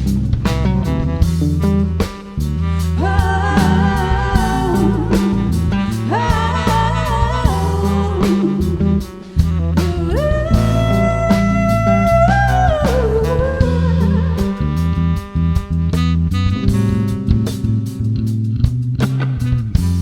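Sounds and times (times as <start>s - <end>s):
bass guitar: 0.0s - 20.0s
drum kit: 0.0s - 20.0s
wavering lead melody: 3.0s - 15.3s.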